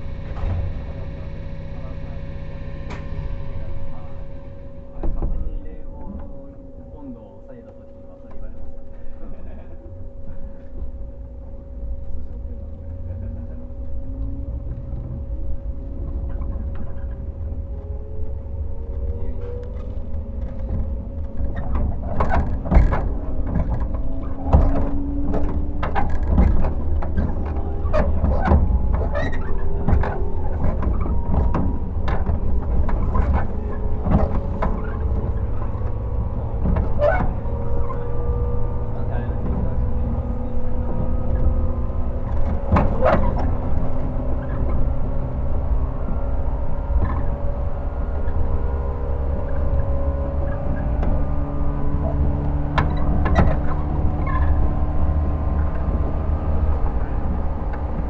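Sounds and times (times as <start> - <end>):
train low rumble: 0.0 - 58.0
train traction motors humming: 0.0 - 58.0
wheels clacking over rail joints: 13.4 - 58.0.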